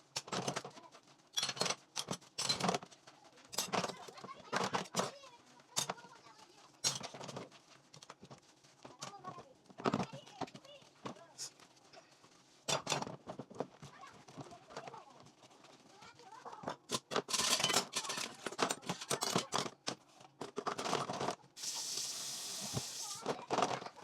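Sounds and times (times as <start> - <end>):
dishes and utensils clinking: 1.4 - 2.8, 3.5 - 5.1, 5.7 - 6.1, 6.8 - 7.4, 12.7 - 13.2, 16.6 - 19.9
tap running: 21.6 - 23.9.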